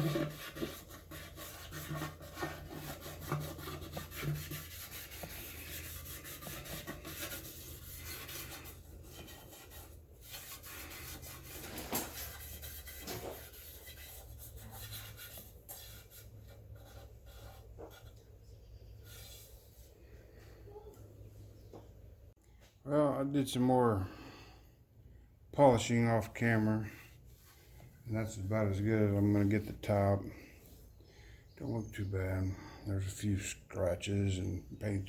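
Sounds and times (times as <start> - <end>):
pad scrubbing painted metal: 0.0 - 18.3.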